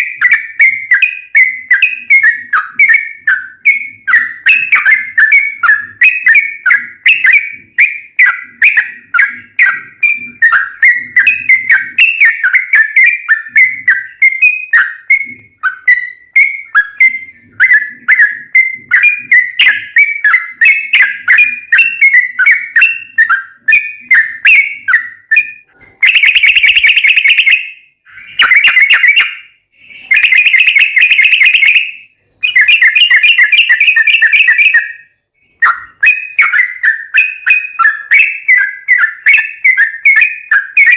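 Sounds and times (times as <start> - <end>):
bird rolling trills: 0.0 - 26.9
bird chattering notes: 0.0 - 31.8.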